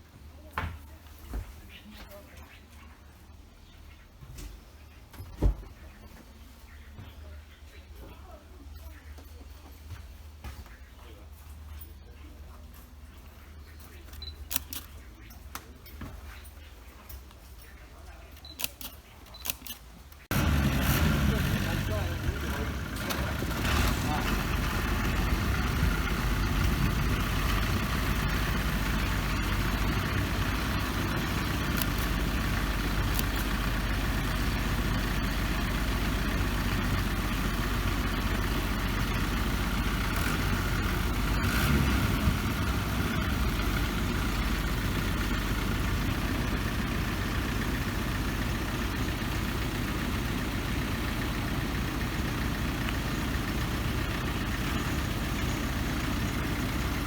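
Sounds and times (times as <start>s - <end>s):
train engine idling: 20.3s - 57.0s.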